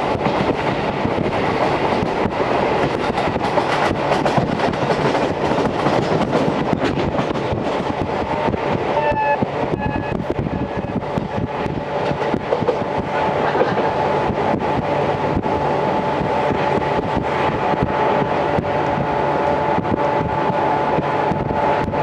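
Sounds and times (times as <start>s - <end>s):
train wheel and rail noise: 0.0s - 22.0s
high whining tone: 9.0s - 11.0s.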